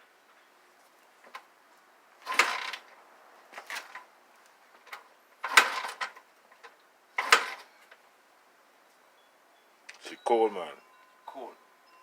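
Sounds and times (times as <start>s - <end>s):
dirt bike kick-starter clattering: 2.2s - 2.9s, 4.8s - 7.7s
engine turning over: 2.2s - 2.9s, 4.9s - 6.2s, 7.2s - 7.7s.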